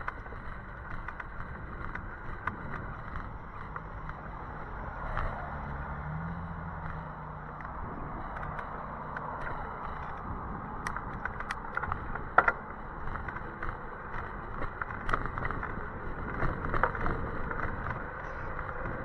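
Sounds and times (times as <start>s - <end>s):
hiss of tyres and wind: 0.0s - 19.0s
clicks and rattles: 6.9s - 19.0s.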